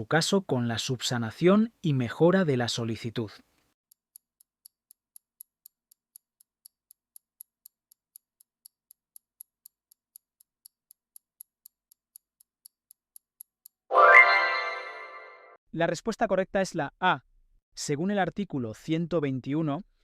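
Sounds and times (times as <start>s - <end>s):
timer ticking: 3.9s - 13.8s.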